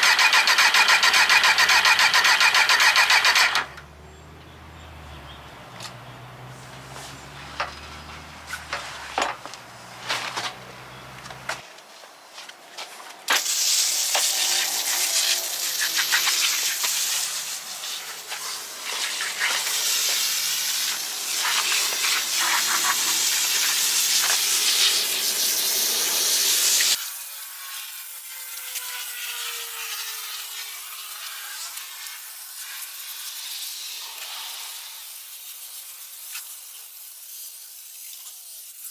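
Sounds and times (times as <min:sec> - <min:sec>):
pressurised spray hissing: 0:13.3 - 0:27.0.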